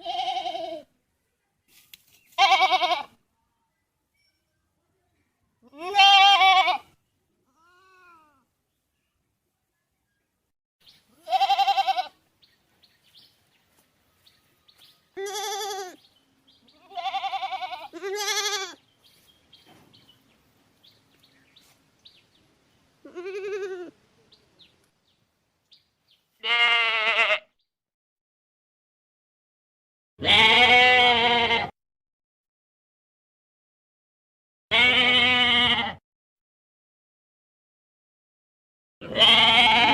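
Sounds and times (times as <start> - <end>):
goat bleating: 0.0 - 0.9, 2.4 - 3.2, 5.6 - 8.5, 11.1 - 12.2, 15.2 - 16.1, 16.7 - 18.8, 23.0 - 24.0, 26.4 - 27.5, 30.2 - 31.7, 34.7 - 36.0, 39.0 - 39.9.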